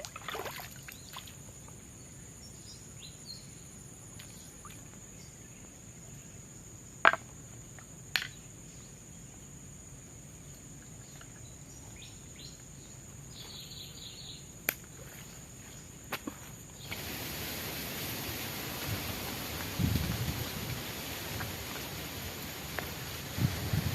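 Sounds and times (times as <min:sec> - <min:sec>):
insects droning: 0:00.0 - 0:23.9.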